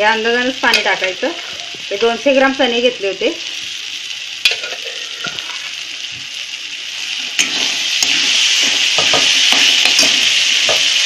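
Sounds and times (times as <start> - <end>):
chickpeas sizzling in oil: 0.0 - 11.0
metal spatula scraping pan: 4.5 - 5.8, 7.3 - 10.8.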